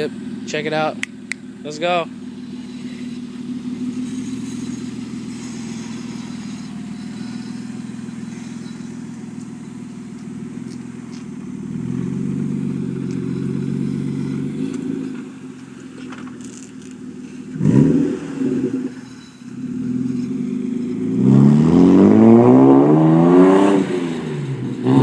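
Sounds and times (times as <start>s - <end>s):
car engine through straight-piped exhaust: 0.0s - 25.0s.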